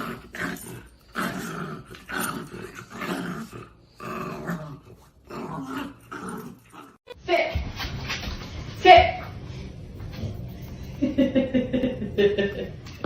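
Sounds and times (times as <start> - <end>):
dog growling: 0.0 - 7.1.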